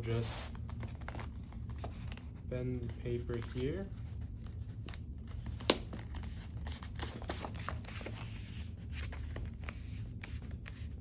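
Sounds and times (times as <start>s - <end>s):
thick paper crackling and rustling: 4.8s - 11.0s.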